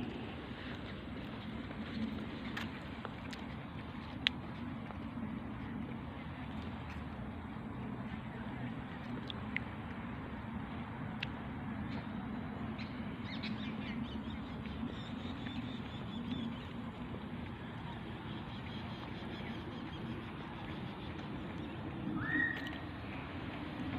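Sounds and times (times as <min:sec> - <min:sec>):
steady background noise: 0:00.0 - 0:23.9.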